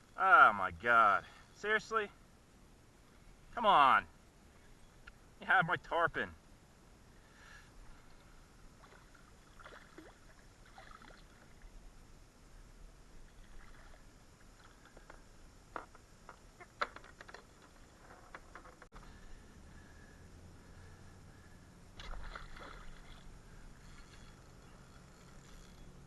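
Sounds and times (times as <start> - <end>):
water lapping around kayak: 7.8 - 11.9, 13.0 - 15.2, 21.9 - 25.7.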